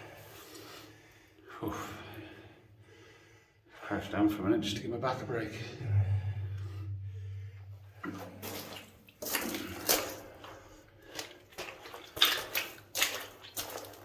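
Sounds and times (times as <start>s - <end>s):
water splashing and sloshing: 5.7s - 14.0s.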